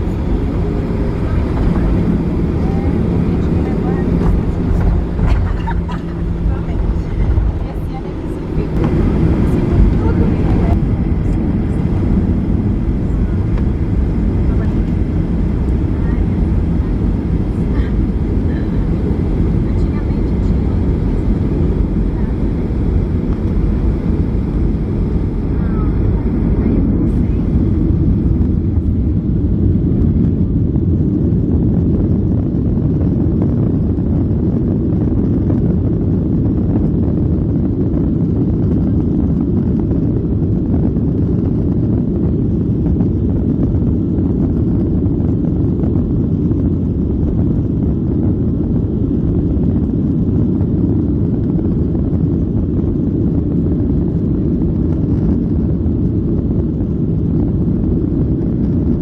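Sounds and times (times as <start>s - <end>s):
jet engines roaring: 0.0s - 59.0s.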